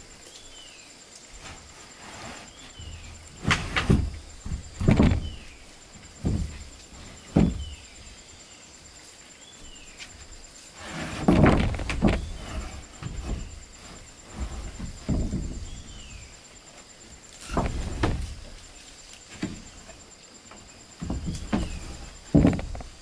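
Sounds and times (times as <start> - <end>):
wooden knocks and thuds: 1.4 - 8.2, 10.8 - 16.4, 17.1 - 18.6, 19.3 - 23.0.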